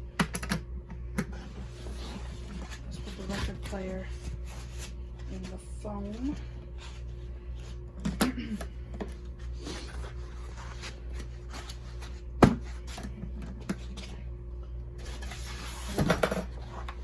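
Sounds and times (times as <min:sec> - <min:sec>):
steady low hum: 0:00.0 - 0:17.0
cardboard and foam rustling: 0:01.5 - 0:07.8, 0:09.2 - 0:13.2.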